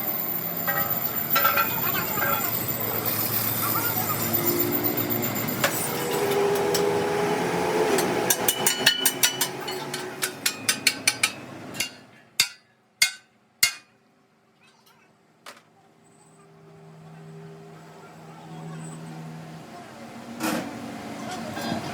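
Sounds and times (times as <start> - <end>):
noisy workshop background: 0.0 - 21.9
hammer striking metal: 7.9 - 13.9.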